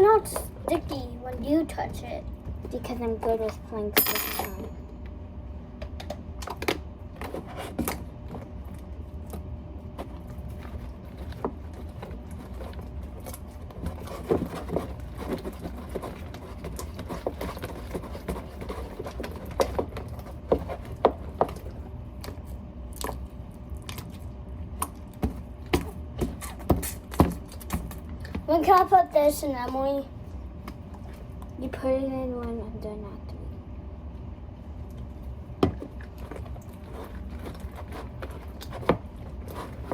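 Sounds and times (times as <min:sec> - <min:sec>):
steady low hum: 0:00.0 - 0:39.9
slime squelching: 0:07.4 - 0:29.0.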